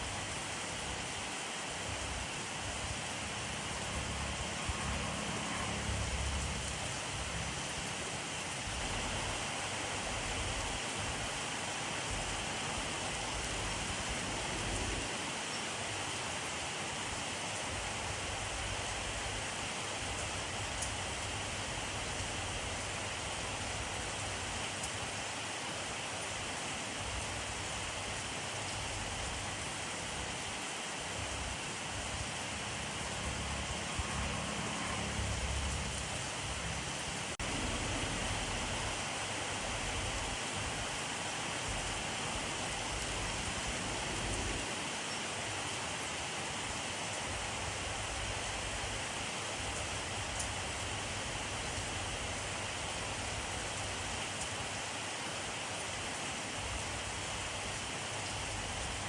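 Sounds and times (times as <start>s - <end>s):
rain falling on surfaces: 0.0s - 59.0s
low rumble: 37.4s - 39.0s.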